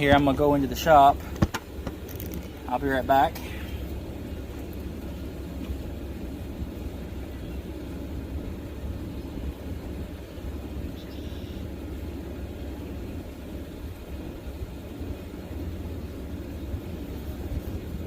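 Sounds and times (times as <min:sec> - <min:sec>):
low background rumble: 0:00.0 - 0:18.0.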